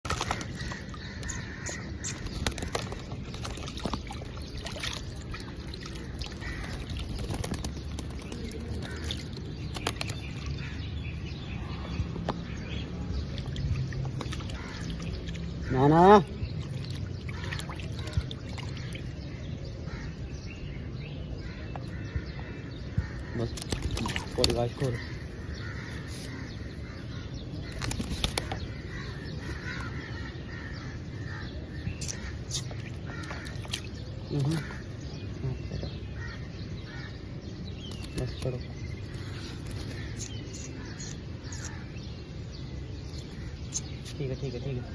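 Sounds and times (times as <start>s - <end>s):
water splashing: 0.0s - 10.8s, 13.1s - 19.3s, 23.5s - 24.8s.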